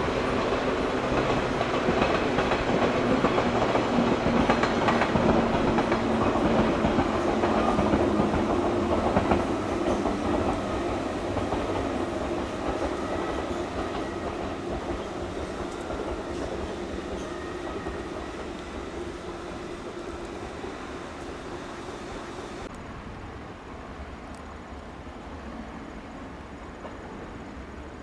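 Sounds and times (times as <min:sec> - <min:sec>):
electric train running: 0:00.0 - 0:22.7.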